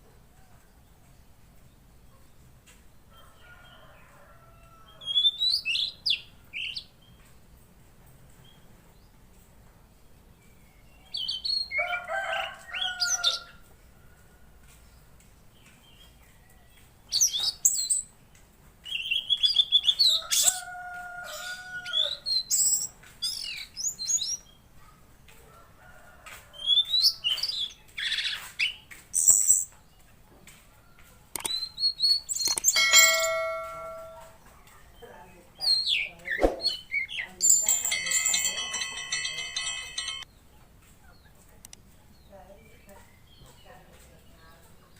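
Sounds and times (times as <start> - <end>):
songbird singing: 0.2 - 7.7, 9.9 - 25.4, 26.5 - 39.3.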